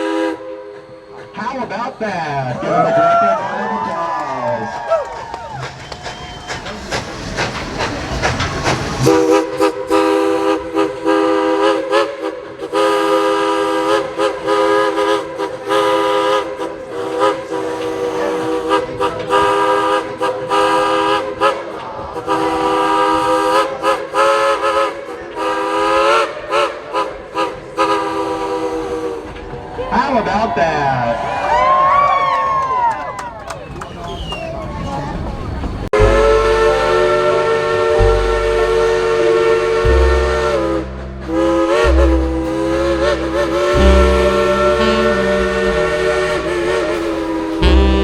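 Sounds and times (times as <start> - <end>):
steam whistle chord blasts: 0.0 - 1.8, 8.9 - 29.4, 36.0 - 48.0
train noise: 0.0 - 48.0.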